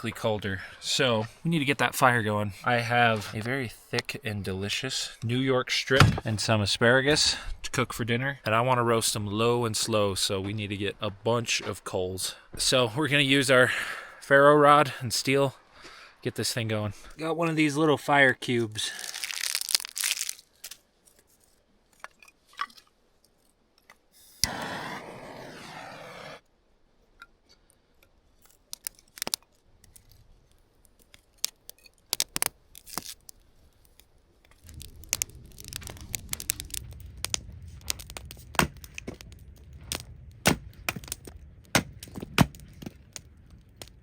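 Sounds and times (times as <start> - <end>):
kindling snapping and crackling: 18.7 - 20.8, 28.4 - 44.0
ferro rod rasping scrape: 24.4 - 26.4
rush of flames: 24.4 - 26.4, 33.9 - 44.0.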